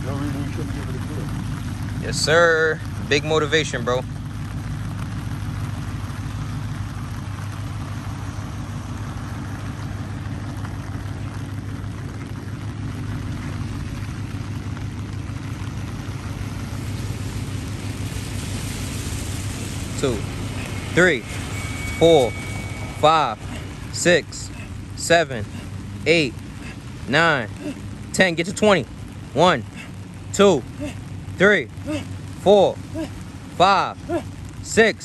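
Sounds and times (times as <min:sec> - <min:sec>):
low steady hum: 0:00.0 - 0:34.7
rain falling: 0:00.0 - 0:35.0.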